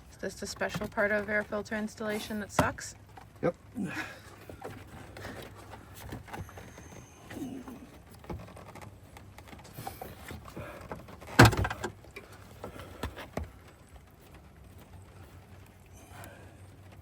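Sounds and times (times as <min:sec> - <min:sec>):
plastic parts clicking and knocking: 0:08.1 - 0:13.5.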